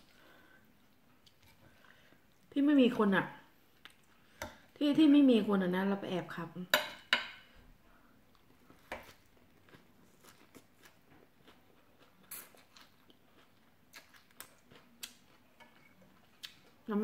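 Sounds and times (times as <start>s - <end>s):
faint chewing: 8.3s - 16.9s.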